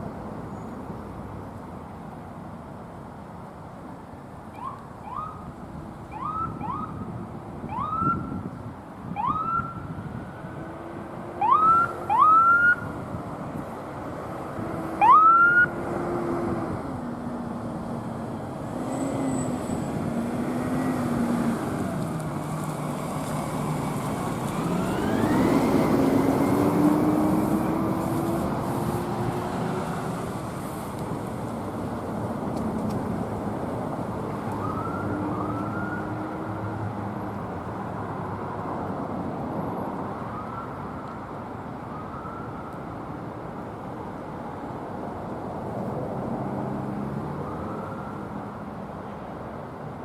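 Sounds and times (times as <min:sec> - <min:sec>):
traffic noise: 0:00.0 - 0:50.0
emergency vehicle siren: 0:04.5 - 0:08.4, 0:09.1 - 0:13.1, 0:14.5 - 0:17.1, 0:18.5 - 0:30.1, 0:34.2 - 0:38.1, 0:40.1 - 0:43.2, 0:47.0 - 0:48.8.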